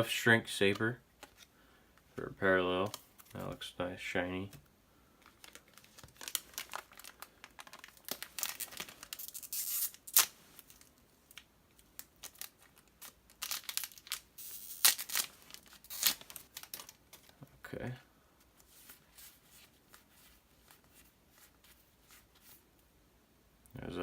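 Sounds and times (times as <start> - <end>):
foil wrapper tearing and crinkling: 5.3 - 10.9, 11.9 - 17.0.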